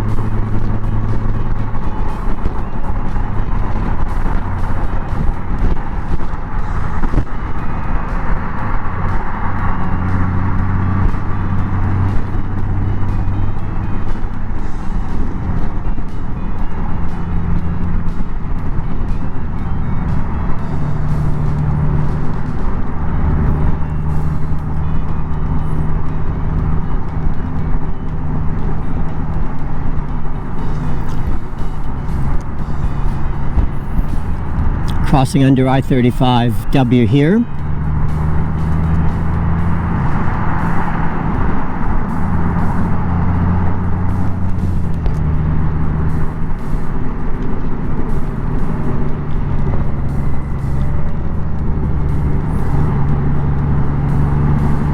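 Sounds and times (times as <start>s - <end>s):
motorcycle engine running: 0.0s - 35.1s
wind and road noise: 0.0s - 54.9s.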